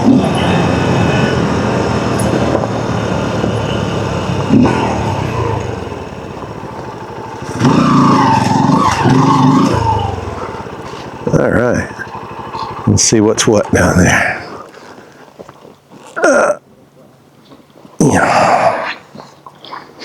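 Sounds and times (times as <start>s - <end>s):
dirt bike engine running: 0.0s - 14.7s.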